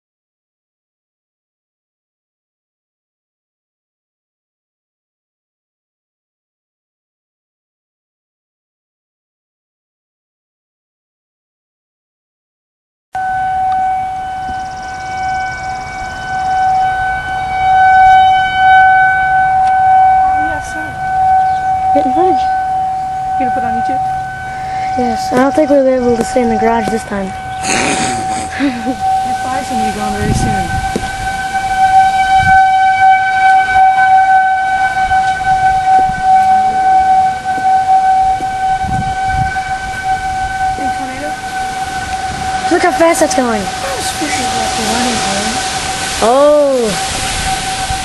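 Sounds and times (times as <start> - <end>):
low rumbling noise: 13.2 - 48.0
warning siren wailing: 13.2 - 48.0.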